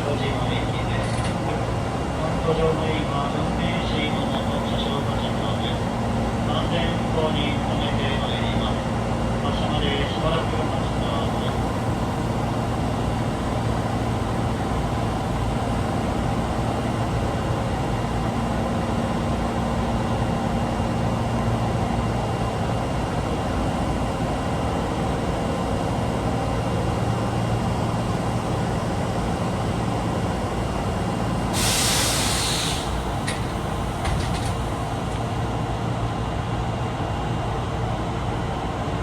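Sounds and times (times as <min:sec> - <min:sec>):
subway car humming: 0:00.0 - 0:39.0
compressed air hiss: 0:31.5 - 0:34.0.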